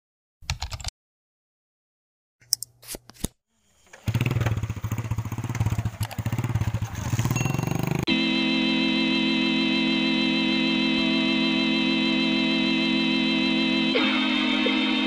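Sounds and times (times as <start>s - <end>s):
motorcycle engine putter: 3.9s - 8.0s.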